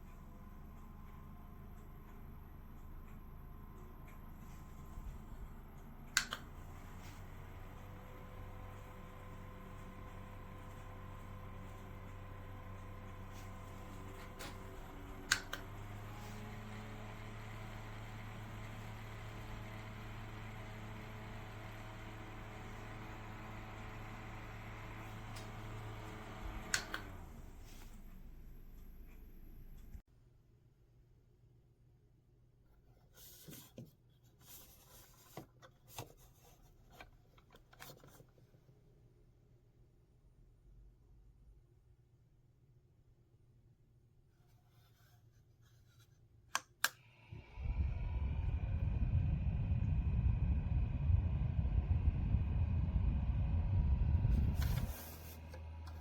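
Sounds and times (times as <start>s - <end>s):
desk fan humming: 0.0s - 29.0s, 47.2s - 56.0s.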